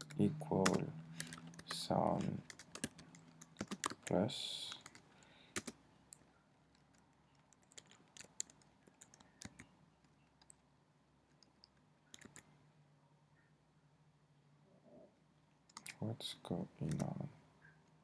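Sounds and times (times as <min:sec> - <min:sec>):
computer keyboard key clicks: 0:00.0 - 0:04.1, 0:05.6 - 0:05.8, 0:06.8 - 0:09.7, 0:11.4 - 0:12.4.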